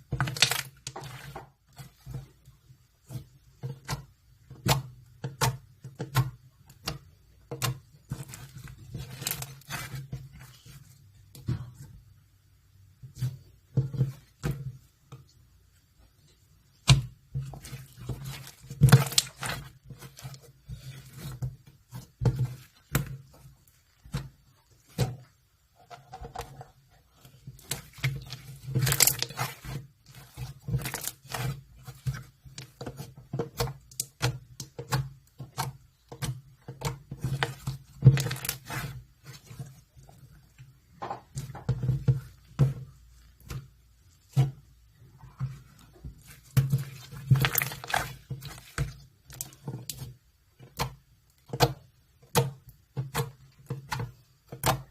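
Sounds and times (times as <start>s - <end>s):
slime squished by hand: 17.6s - 21.4s, 46.2s - 50.0s.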